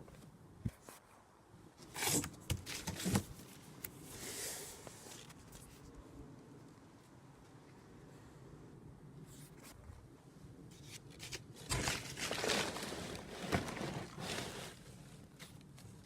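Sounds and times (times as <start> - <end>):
cardboard crunching and tearing: 10.8 - 16.0.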